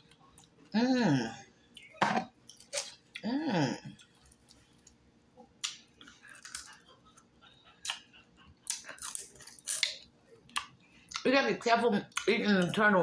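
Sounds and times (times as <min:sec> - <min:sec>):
close-up eating sounds: 0:00.0 - 0:13.0
person humming: 0:00.8 - 0:01.4, 0:03.2 - 0:03.9.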